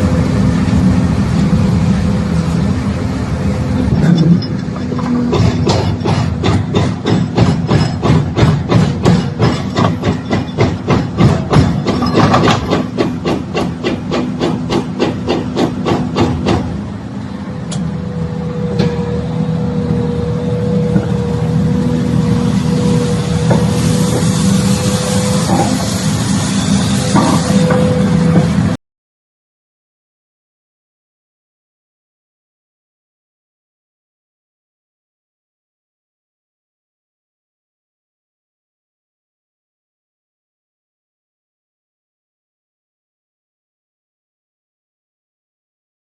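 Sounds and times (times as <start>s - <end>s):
diesel engine running: 0.0s - 28.8s
hydraulic breaker hammering: 4.0s - 16.8s
sharp knocks: 5.0s - 16.7s
hydraulic breaker blow: 22.8s - 28.8s.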